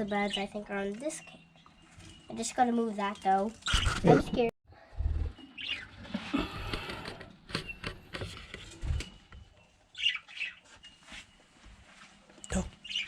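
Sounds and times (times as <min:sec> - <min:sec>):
budgie chicks calling: 0:03.6 - 0:04.5.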